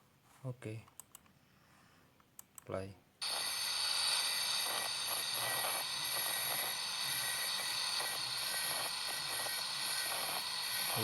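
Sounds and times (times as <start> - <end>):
angle grinder cutting steel chain: 6.2 - 11.0.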